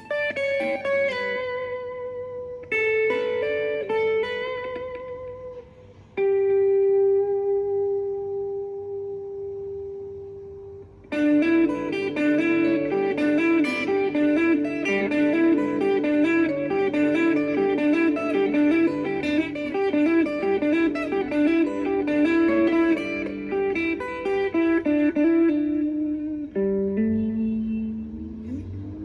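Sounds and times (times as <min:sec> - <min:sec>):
guitar music: 0:00.0 - 0:29.0.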